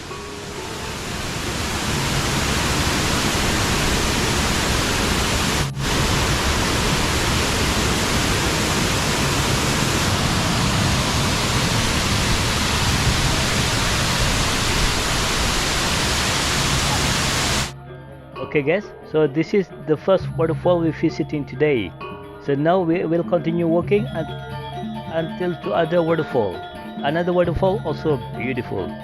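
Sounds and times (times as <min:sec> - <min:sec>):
waterfall rushing: 0:00.0 - 0:17.7.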